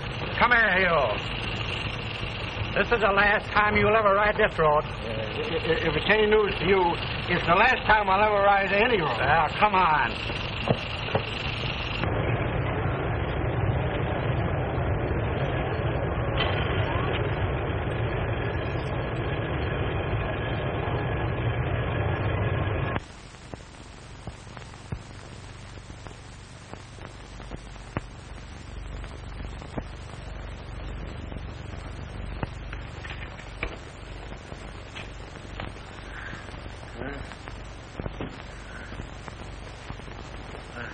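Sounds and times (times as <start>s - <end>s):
film hiss with clicks: 0.0s - 12.1s, 23.0s - 40.9s.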